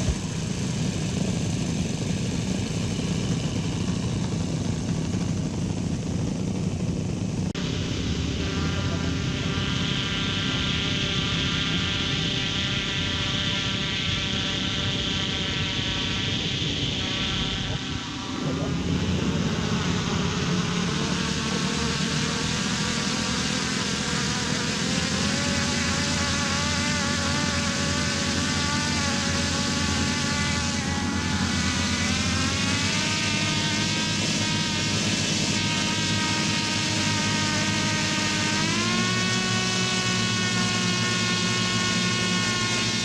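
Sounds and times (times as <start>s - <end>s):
model jet turbine whine: 0.0s - 43.0s.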